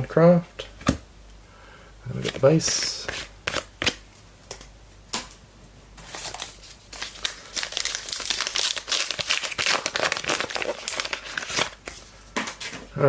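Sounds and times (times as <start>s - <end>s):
wrapper tearing and crinkling: 6.0s - 11.9s.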